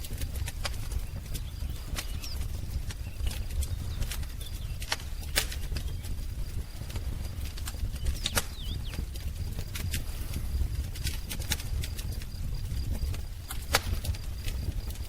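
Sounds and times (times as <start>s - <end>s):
low rumble of flames: 0.0s - 15.0s
sharp fire pops: 0.0s - 15.0s
wood fire crackling: 0.0s - 15.0s
faint bird chirps: 0.9s - 6.1s, 7.9s - 9.1s.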